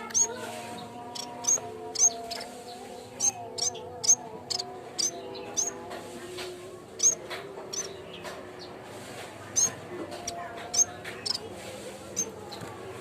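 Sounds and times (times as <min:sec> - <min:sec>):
bird chip notes: 0:00.0 - 0:05.8.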